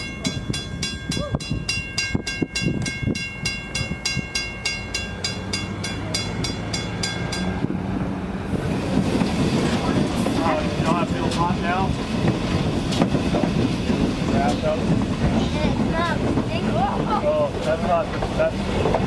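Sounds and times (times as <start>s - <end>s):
railroad crossing bell ringing: 0.0s - 7.7s
train rumble: 0.0s - 19.0s.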